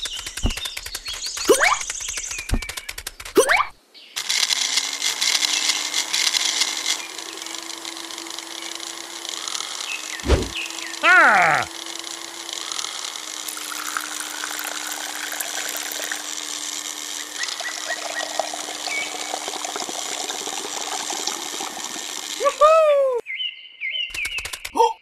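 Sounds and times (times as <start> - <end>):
quick clicks: 0.0 - 10.6, 11.6 - 14.1, 24.1 - 24.8
gliding voice-like sound: 10.2 - 11.7
liquid trickling into glass: 13.4 - 22.6.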